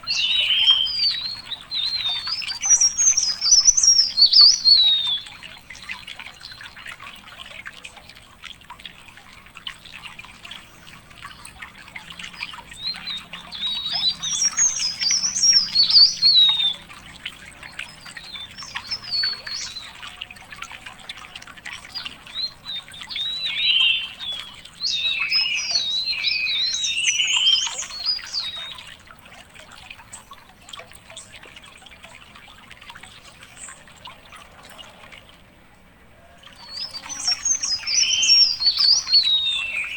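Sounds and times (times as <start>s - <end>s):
songbird twittering: 0.0s - 6.6s, 10.5s - 20.3s, 21.2s - 28.9s, 36.5s - 39.9s.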